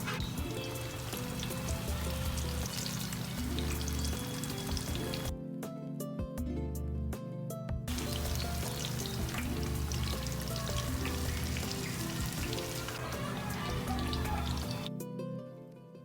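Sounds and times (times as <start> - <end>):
oil sizzling and crackling: 0.0 - 5.3, 7.9 - 14.9
background music: 0.0 - 16.0.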